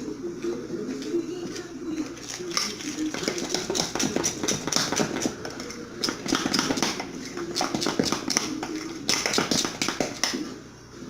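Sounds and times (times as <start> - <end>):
spoon beating batter in a bowl: 2.6 - 10.5.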